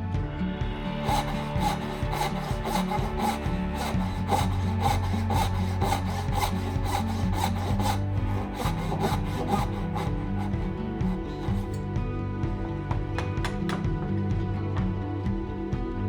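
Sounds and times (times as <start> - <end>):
background music: 0.0 - 16.0
hand tool strokes on wood: 1.0 - 11.8.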